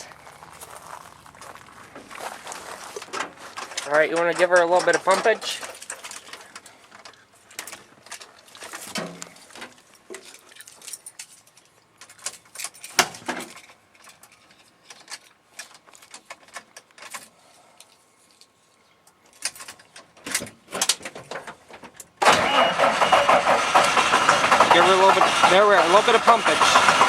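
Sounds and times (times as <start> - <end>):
diesel engine starting and running: 0.0 - 5.8, 22.2 - 27.0
clicks and knocks: 3.0 - 11.0.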